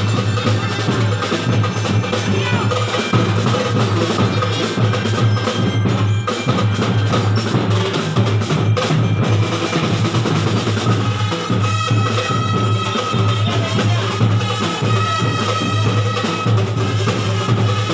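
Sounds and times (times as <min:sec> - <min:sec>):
snare and bass drums beating: 0:00.0 - 0:17.9
brass horns sustained notes: 0:11.0 - 0:17.9.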